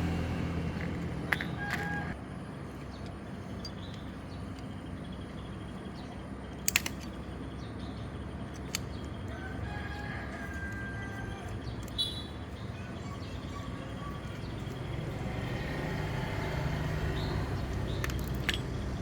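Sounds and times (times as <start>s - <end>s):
sharp clicks: 6.5s - 7.2s.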